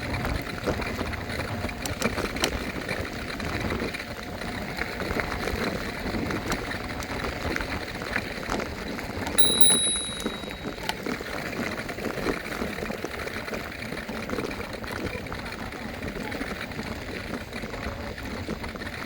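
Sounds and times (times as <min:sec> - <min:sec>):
handlebar bell ding: 0:09.4 - 0:10.8.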